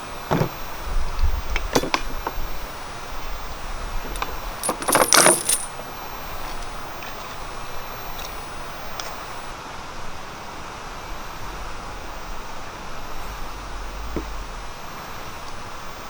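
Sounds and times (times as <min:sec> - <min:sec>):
metal objects clinking: 0:04.1 - 0:05.8.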